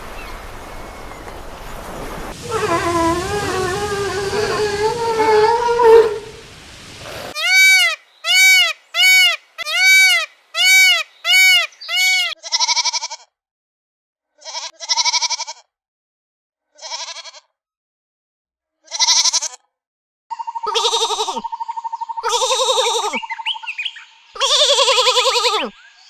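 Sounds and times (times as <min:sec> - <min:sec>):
short rising and falling calls: 0:02.3 - 0:07.4
farm animal bleating: 0:02.4 - 0:07.9, 0:11.6 - 0:13.3, 0:14.4 - 0:15.7, 0:16.7 - 0:17.5, 0:18.8 - 0:19.6, 0:20.6 - 0:21.4, 0:22.2 - 0:23.2.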